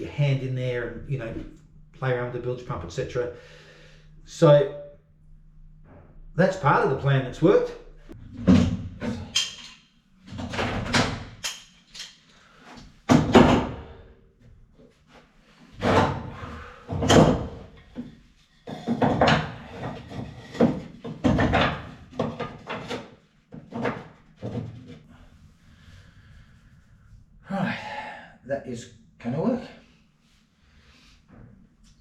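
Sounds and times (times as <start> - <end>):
wood knocking and scraping on wood: 16.9 - 25.1.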